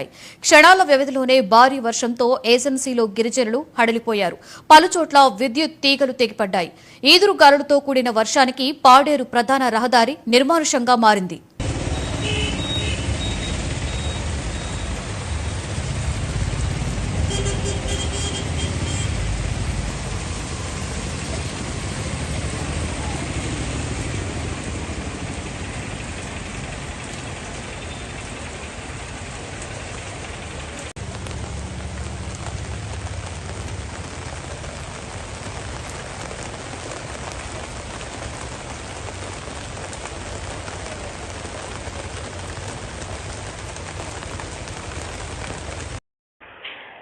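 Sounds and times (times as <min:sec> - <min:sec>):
heavy rain pouring: 0:11.6 - 0:46.0.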